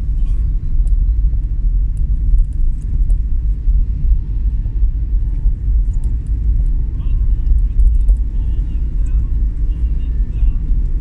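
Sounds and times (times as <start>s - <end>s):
vehicle driving on road: 0.0s - 11.0s
faint light ticks: 5.3s - 6.8s.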